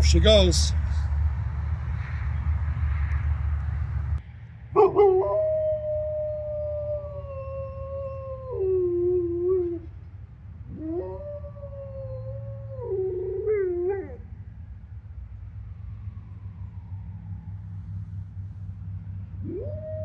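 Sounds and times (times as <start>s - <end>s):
dog howling: 4.8s - 9.9s, 10.7s - 14.2s, 19.4s - 20.0s.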